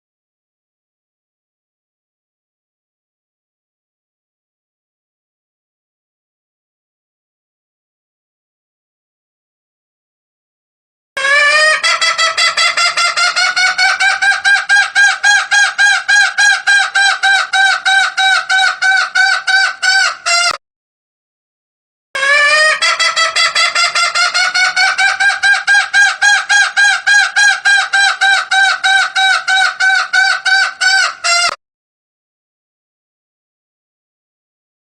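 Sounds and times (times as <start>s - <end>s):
junglefowl rapid clucking: 11.2s - 20.6s, 22.2s - 31.6s.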